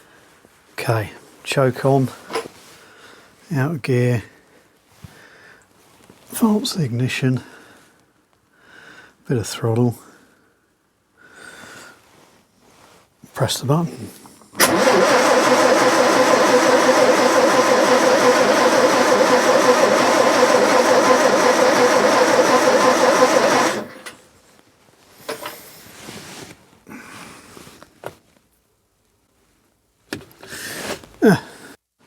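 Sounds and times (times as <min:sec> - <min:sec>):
starter motor cranking engine: 0:14.6 - 0:24.2.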